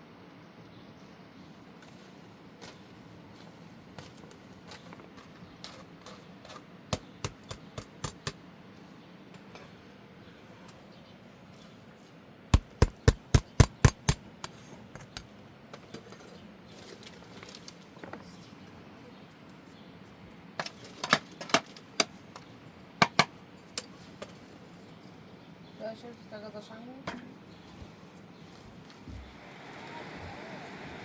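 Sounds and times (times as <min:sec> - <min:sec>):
sharp knocks: 0:12.6 - 0:14.2.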